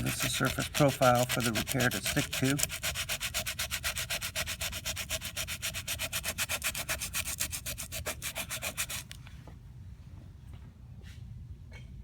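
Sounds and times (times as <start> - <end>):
sandpaper scrubbing a coating: 0.0 - 9.2.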